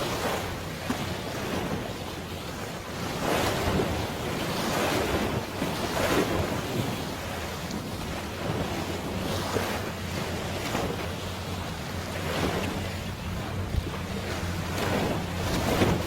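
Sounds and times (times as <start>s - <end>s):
sea waves washing: 0.0s - 16.0s
wind buffeting microphone: 0.0s - 16.0s.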